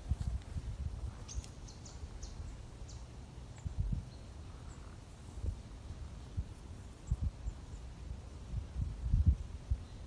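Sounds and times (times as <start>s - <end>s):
small bird chirping: 1.2s - 5.0s.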